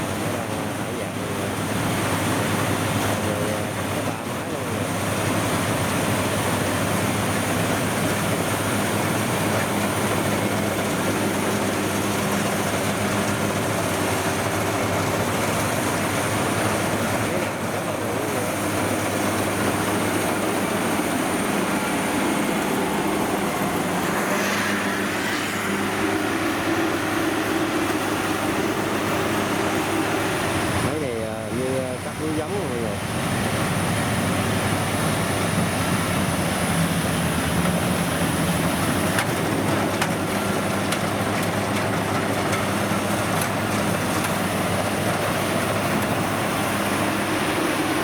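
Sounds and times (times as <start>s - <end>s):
combine harvester diesel engines: 0.0s - 48.0s
steady high whine: 8.3s - 37.5s.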